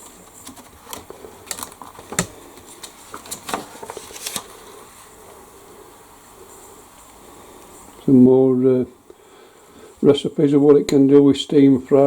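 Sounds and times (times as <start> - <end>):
paper pages rustling: 0.0 - 5.2.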